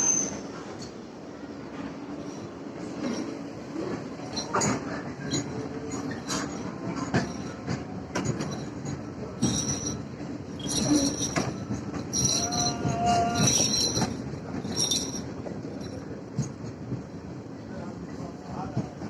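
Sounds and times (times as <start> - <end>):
train rumble: 0.0 - 19.0
high-pitched wheel squeals: 12.1 - 14.2.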